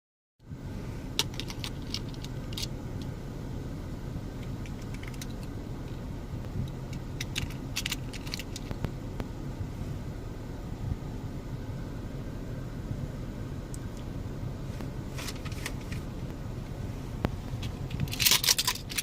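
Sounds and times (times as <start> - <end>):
steady low hum: 0.4 - 19.0
toy truck clicking and rattling: 7.2 - 8.7, 17.9 - 19.0.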